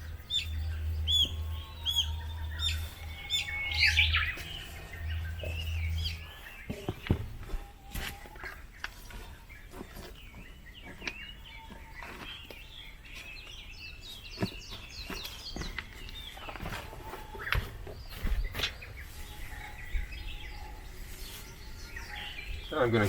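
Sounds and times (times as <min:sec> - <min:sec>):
small birds chirping: 0:00.0 - 0:23.0
soil being dug: 0:01.3 - 0:19.6.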